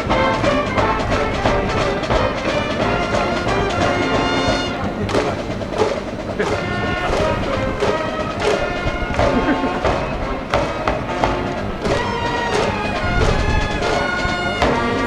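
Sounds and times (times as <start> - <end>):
cheering band brass: 0.0 - 15.0
steady drum beats: 0.0 - 15.0.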